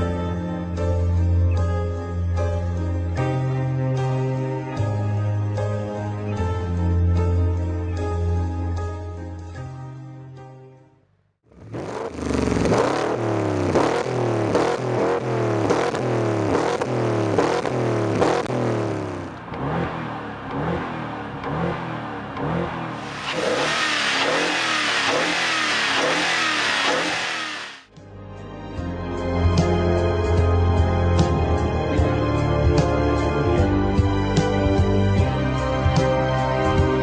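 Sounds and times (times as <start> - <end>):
car engine revving: 11.5 - 27.9
broad rushing sound: 22.9 - 27.9.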